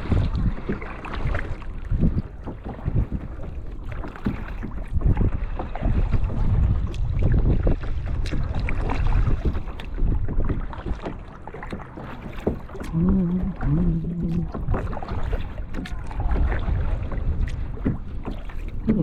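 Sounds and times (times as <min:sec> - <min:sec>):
paddle strokes splashing in water: 0:00.0 - 0:19.0
wind rumbling on microphone: 0:00.0 - 0:19.0
person humming: 0:12.9 - 0:14.6.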